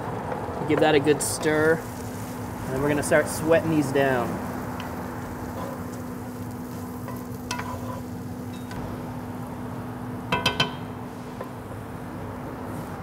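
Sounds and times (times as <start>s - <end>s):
vegetables sizzling in a skillet: 0.7s - 13.0s
wooden spoon knocking on pan: 10.3s - 11.0s.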